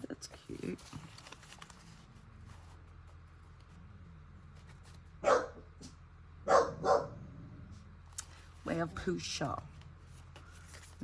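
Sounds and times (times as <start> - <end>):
low steady hum: 0.0 - 11.0
dog barking sharply: 5.2 - 5.6, 6.5 - 7.2.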